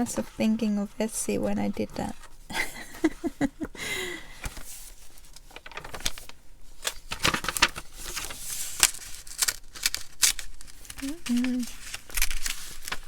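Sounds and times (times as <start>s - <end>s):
paper pages rustling: 4.3s - 13.0s.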